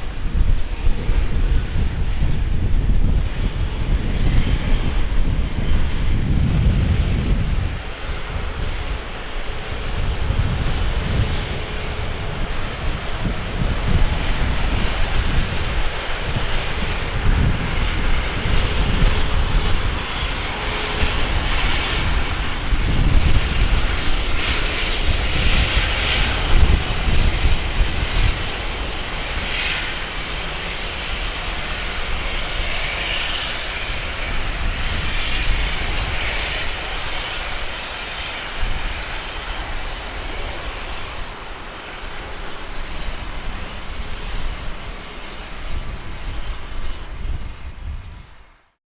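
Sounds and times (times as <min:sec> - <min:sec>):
jet airliner rumble: 0:00.0 - 0:48.8.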